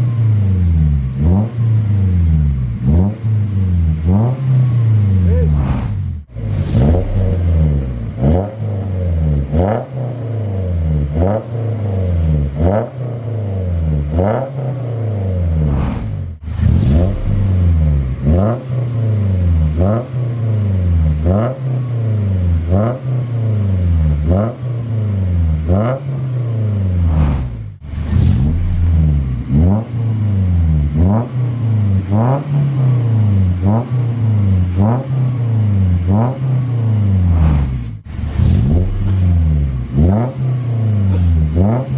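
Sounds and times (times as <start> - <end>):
engine revving: 0.0 - 41.9.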